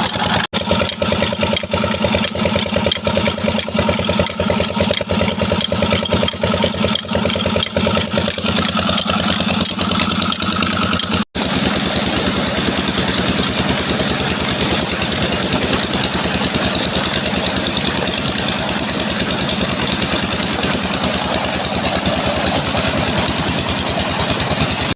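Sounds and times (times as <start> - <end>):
diesel engine running steadily: 0.0 - 24.9.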